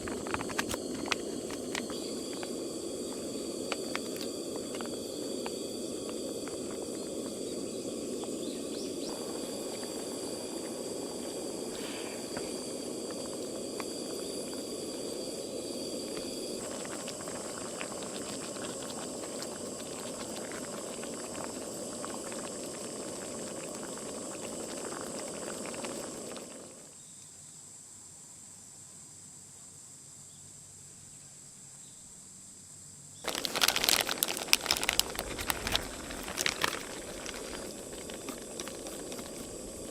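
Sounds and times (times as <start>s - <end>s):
steady hiss: 0.0s - 39.9s
loud crackling: 33.2s - 39.9s.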